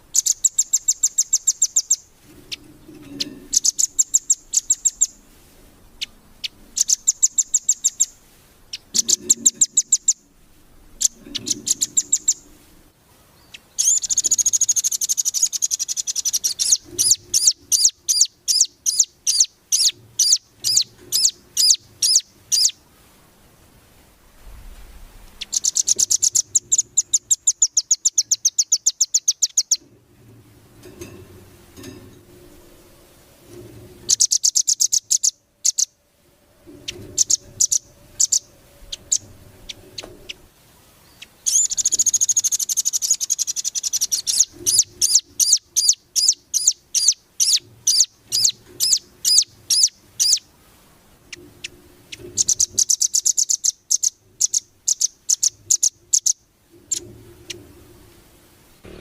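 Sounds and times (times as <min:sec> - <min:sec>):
bird chirps: 0:00.0 - 0:05.2, 0:06.0 - 0:10.3, 0:11.0 - 0:12.5, 0:13.4 - 0:22.8, 0:25.3 - 0:29.9, 0:34.1 - 0:36.0, 0:36.7 - 0:50.5, 0:51.3 - 0:57.6
songbird trilling: 0:00.0 - 0:05.2, 0:06.0 - 0:10.3, 0:11.0 - 0:12.5, 0:13.4 - 0:22.8, 0:25.3 - 0:29.8, 0:34.1 - 0:36.0, 0:36.7 - 0:40.5, 0:41.1 - 0:50.5, 0:51.5 - 0:57.1.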